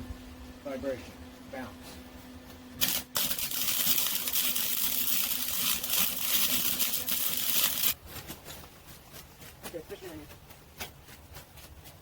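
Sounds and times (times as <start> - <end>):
electric arc welding crackle: 2.8 - 8.0.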